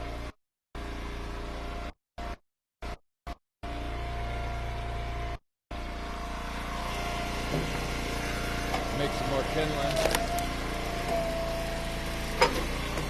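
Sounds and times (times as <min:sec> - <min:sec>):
engine droning: 0:03.6 - 0:13.0.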